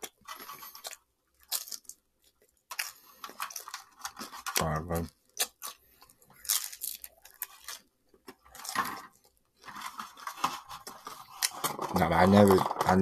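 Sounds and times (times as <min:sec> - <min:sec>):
person chewing food: 0:00.0 - 0:04.6, 0:05.3 - 0:09.7.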